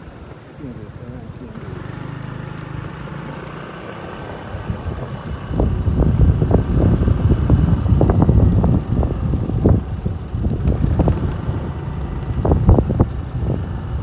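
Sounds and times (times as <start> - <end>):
wind buffeting microphone: 3.9 - 14.0.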